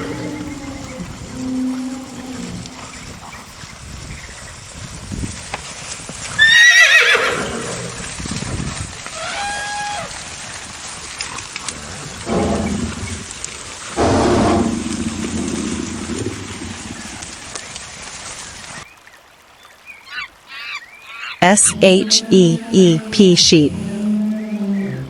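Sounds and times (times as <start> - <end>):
horse whinnying: 6.4 - 8.0.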